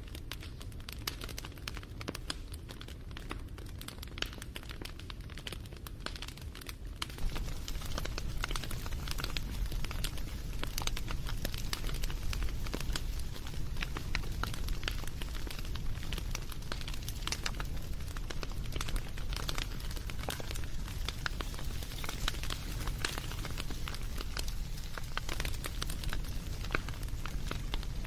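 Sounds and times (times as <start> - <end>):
campfire crackling and popping: 0.0 - 28.0.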